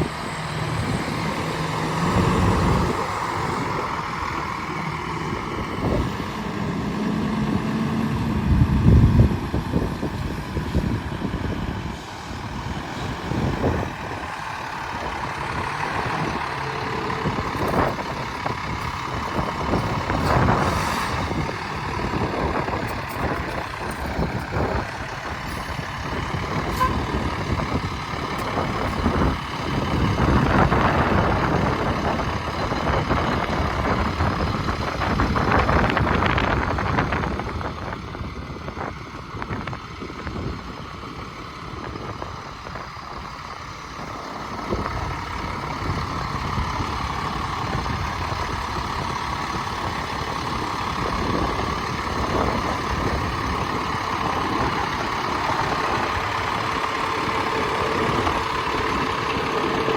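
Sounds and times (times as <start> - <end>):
road noise: 0.0 - 59.9
semi truck engine running: 0.0 - 59.9.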